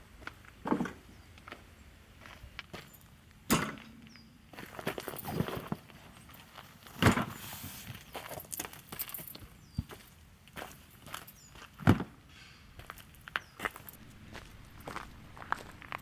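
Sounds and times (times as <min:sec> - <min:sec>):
footsteps and scuffing: 0:04.6 - 0:12.2, 0:12.8 - 0:16.0.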